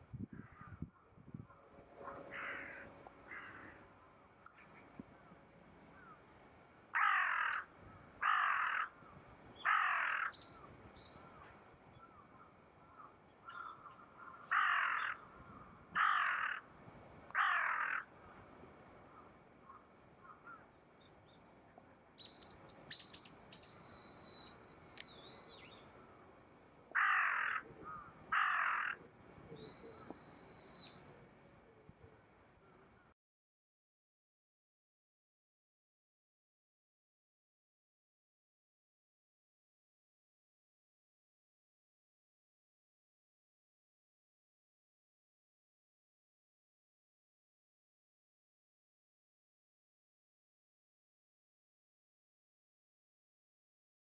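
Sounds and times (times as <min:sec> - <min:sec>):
crow cawing: 0:02.0 - 0:03.9, 0:06.9 - 0:10.4, 0:12.8 - 0:16.7, 0:17.3 - 0:18.1, 0:19.7 - 0:20.7, 0:26.9 - 0:30.9
small bird high calls: 0:22.2 - 0:25.9, 0:27.0 - 0:31.0.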